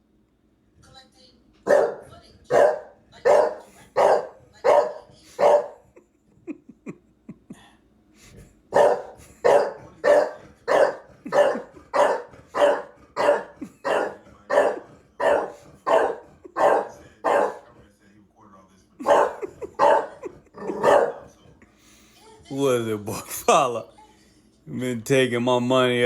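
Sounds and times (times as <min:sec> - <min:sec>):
dog barking: 0:01.6 - 0:06.0, 0:08.7 - 0:17.8, 0:19.0 - 0:21.4.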